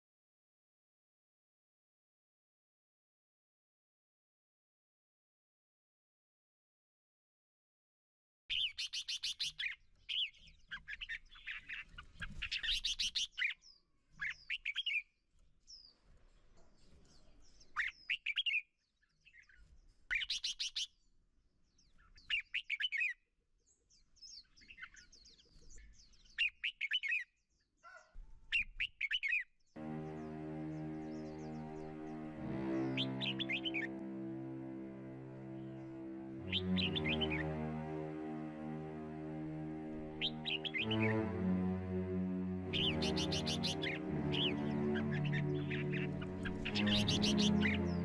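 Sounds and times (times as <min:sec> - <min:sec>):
birds trilling: 0:29.8 - 0:34.0, 0:35.6 - 0:37.6, 0:40.2 - 0:41.2, 0:42.7 - 0:48.0.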